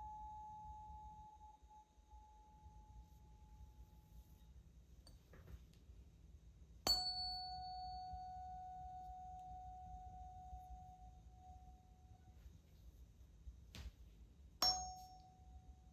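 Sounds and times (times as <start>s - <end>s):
tuning fork ringing: 0.0s - 5.2s, 6.8s - 12.4s, 14.6s - 15.9s.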